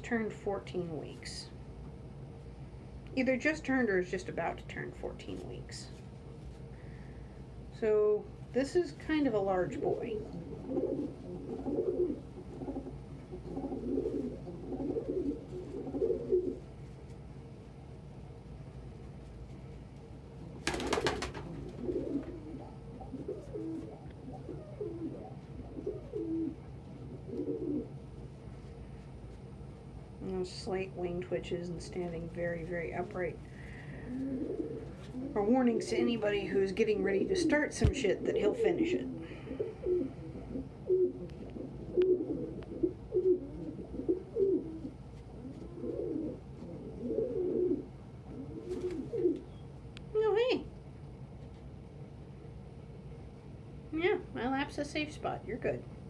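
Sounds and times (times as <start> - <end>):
pigeons cooing: 9.7 - 16.7, 20.4 - 28.0, 33.6 - 36.2, 37.0 - 49.6.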